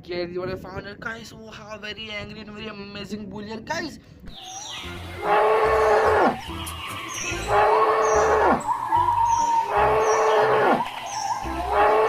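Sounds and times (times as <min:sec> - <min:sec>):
background music: 0:02.5 - 0:12.0
cattle mooing: 0:05.2 - 0:06.4, 0:07.3 - 0:08.6, 0:09.6 - 0:10.9, 0:11.6 - 0:12.0.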